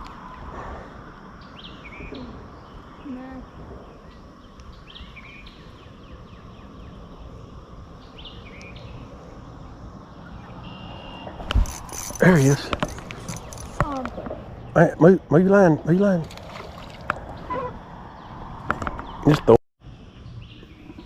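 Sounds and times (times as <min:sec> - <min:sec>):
outdoor background noise: 0:00.0 - 0:21.0
bird chirping: 0:01.4 - 0:15.1.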